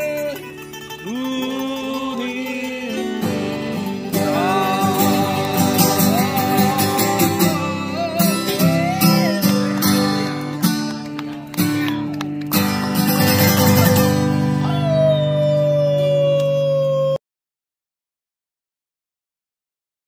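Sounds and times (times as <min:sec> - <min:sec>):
acoustic guitar strumming: 0:00.0 - 0:16.1
group singing: 0:04.2 - 0:08.3.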